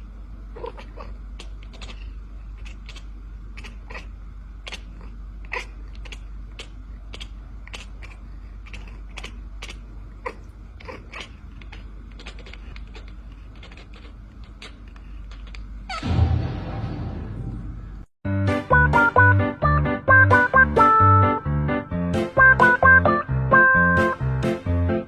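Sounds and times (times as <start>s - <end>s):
low hum: 14.3s - 25.0s.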